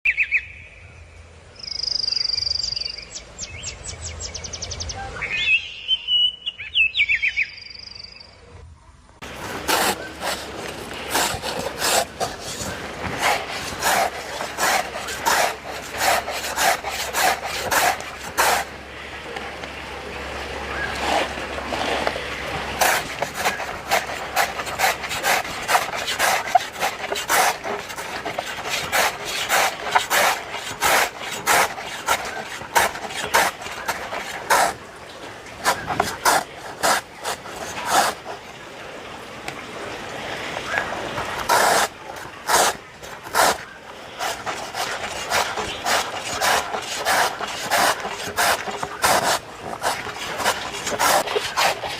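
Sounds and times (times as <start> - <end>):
rasping scraping strokes: 9.2 - 19.7, 20.6 - 34.9, 35.5 - 38.5, 41.3 - 51.9.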